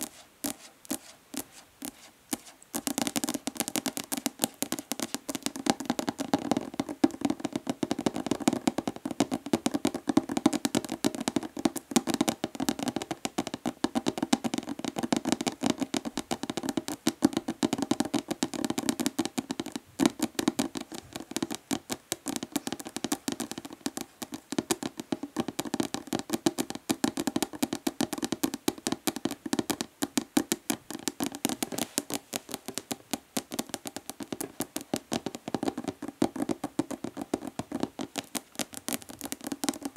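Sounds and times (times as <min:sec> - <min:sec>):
fingernails tapping plastic bottle: 0:02.8 - 0:39.9.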